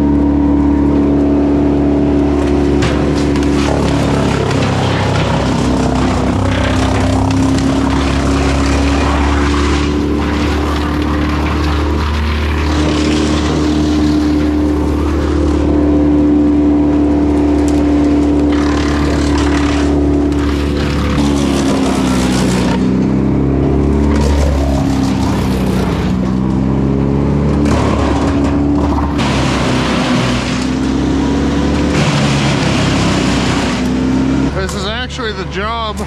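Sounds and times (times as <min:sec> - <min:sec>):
vehicle engine droning: 0:00.0 - 0:36.0.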